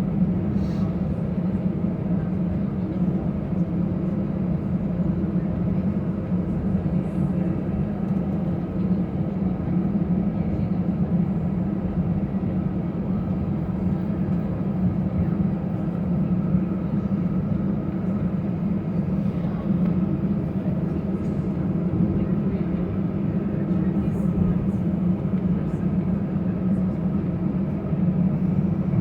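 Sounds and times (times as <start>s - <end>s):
airplane cabin engine drone: 0.0s - 29.0s.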